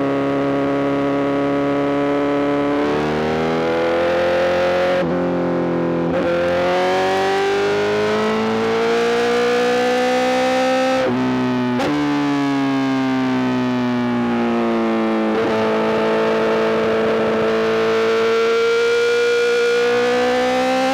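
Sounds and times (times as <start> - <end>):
motorcycle engine revving: 15.3 - 20.9.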